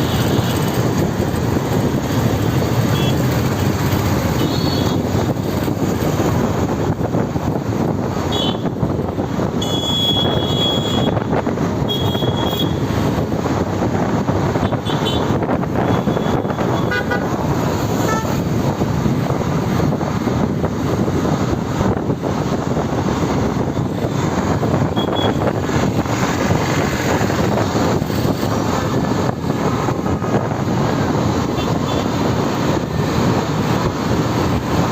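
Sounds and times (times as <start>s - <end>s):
road and traffic noise: 0.0s - 34.9s
vehicle horns honking: 2.9s - 3.2s, 4.4s - 5.0s, 8.3s - 8.7s, 9.6s - 11.2s, 11.8s - 12.8s, 14.7s - 17.4s, 18.0s - 18.4s, 24.9s - 25.5s, 31.6s - 32.1s.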